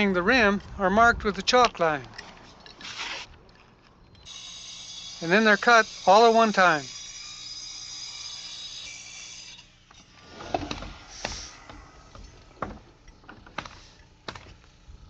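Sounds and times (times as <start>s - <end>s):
power saw running: 4.2s - 10.8s
hiss of air: 10.3s - 12.5s.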